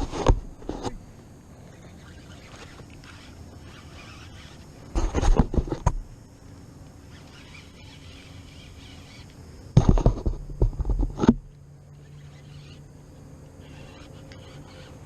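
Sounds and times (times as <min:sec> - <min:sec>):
knocks and bumps of gear: 0:00.0 - 0:01.0, 0:04.9 - 0:06.1, 0:09.7 - 0:11.5
faint bird calls: 0:00.9 - 0:04.9, 0:06.4 - 0:09.8, 0:11.7 - 0:15.0.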